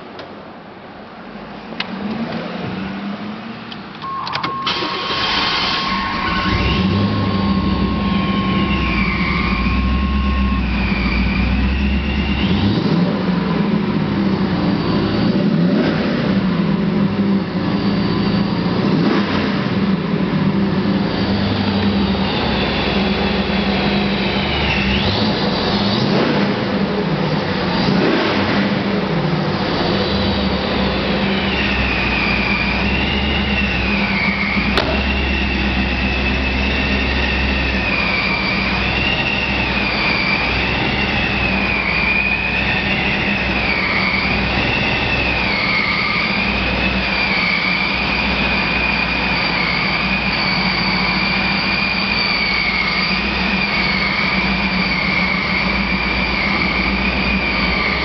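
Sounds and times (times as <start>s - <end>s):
car engine running steadily: 0.0s - 58.0s
supercharger whine wavering: 2.8s - 58.0s
short click: 4.0s - 4.6s.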